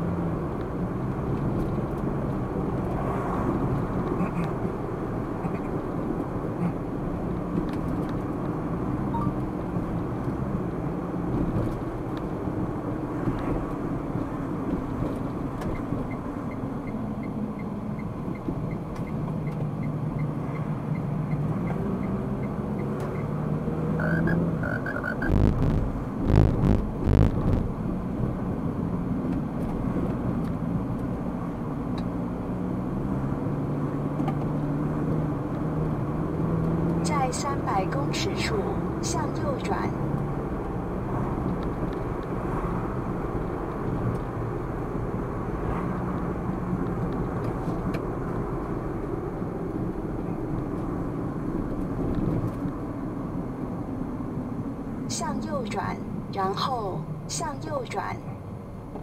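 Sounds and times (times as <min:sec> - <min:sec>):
car engine and tyre noise: 0:00.0 - 0:59.0
brief beep: 0:09.1 - 0:09.4.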